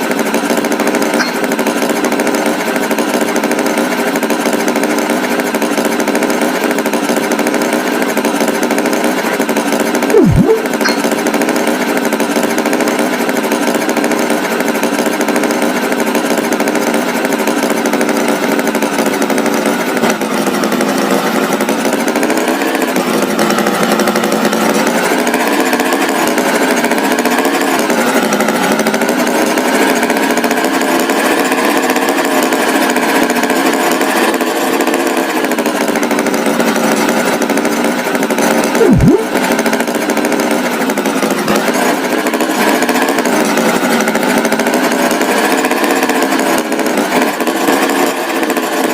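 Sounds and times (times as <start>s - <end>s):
tractor engine running: 0.0s - 30.2s
sliding tone: 10.2s - 11.1s, 38.8s - 39.3s.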